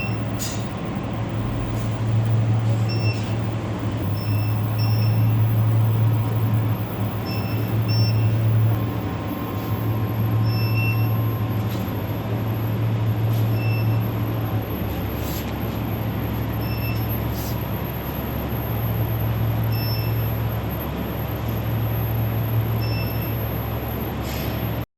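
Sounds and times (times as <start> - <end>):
fan noise: 0.0 - 24.9
short high beeps: 13.5 - 14.1, 16.6 - 17.2.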